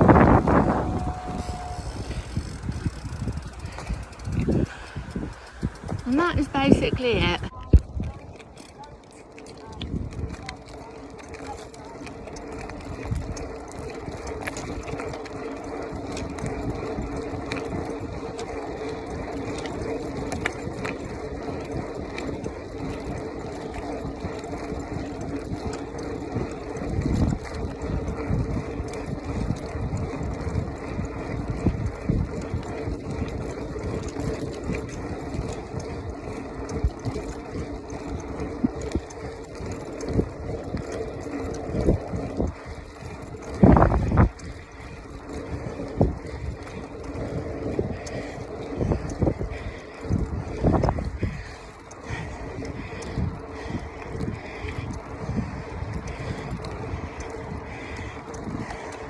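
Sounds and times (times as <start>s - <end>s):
bicycle knocking over bumps: 0.0s - 6.8s
steady hum: 0.0s - 7.8s
bicycle tyre and frame rumble: 0.0s - 59.0s.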